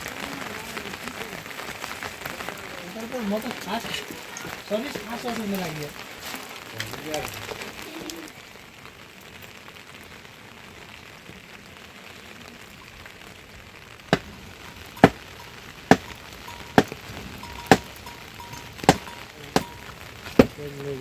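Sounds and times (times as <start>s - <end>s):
sharp chopping strikes: 15.0s - 15.2s, 15.9s - 16.2s, 17.7s - 18.0s, 18.9s - 19.8s.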